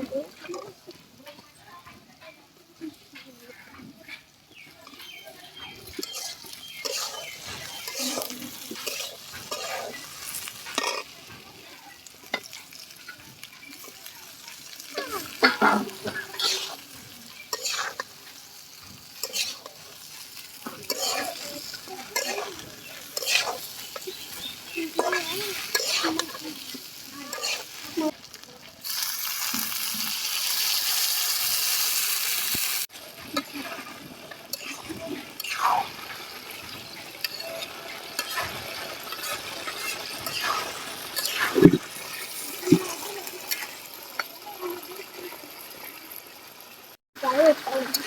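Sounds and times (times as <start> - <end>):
food sizzling in a pan: 0.0 - 48.0
spoon scraping a pan: 3.2 - 11.4, 12.2 - 28.0, 33.2 - 44.3.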